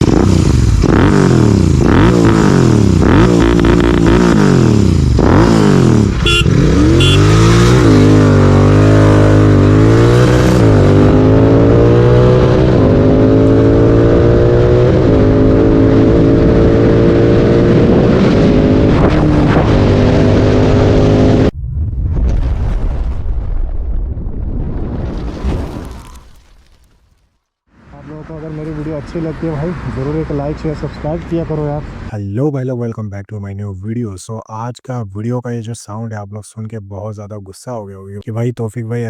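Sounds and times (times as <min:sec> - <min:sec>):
motorcycle engine revving: 0:00.0 - 0:21.5.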